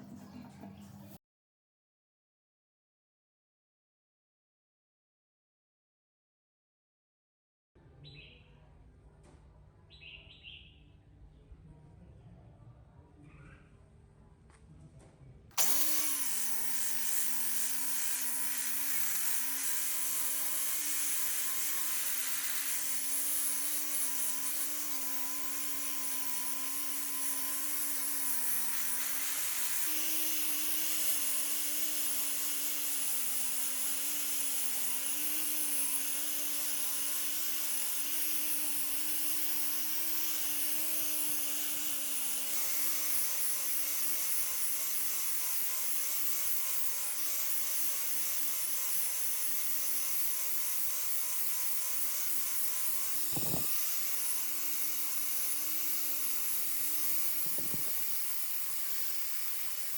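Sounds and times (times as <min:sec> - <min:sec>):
electric power tool motor: 0:15.6 - 0:59.9
high hiss of grinding: 0:15.6 - 0:59.9.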